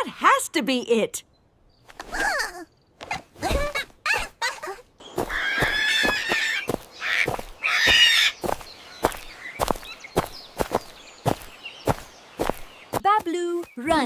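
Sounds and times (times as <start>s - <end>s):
cartoon animal squealing cries: 3.4s - 8.4s.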